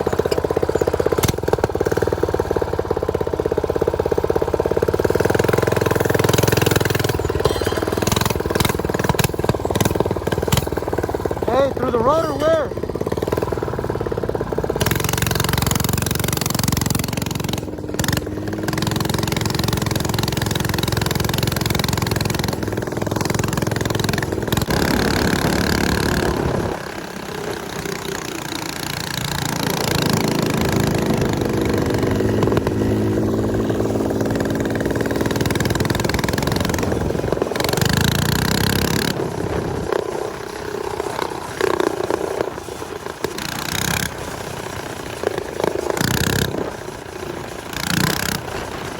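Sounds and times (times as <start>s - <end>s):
motorcycle engine under load: 0.0s - 48.9s
wind noise on microphone: 24.6s - 26.9s, 39.1s - 40.4s.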